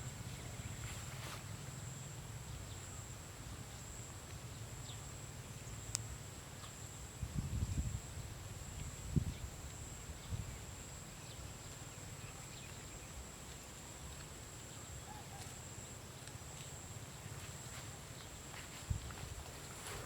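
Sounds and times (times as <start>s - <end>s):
wind on microphone: 7.2s - 10.7s, 18.7s - 20.0s.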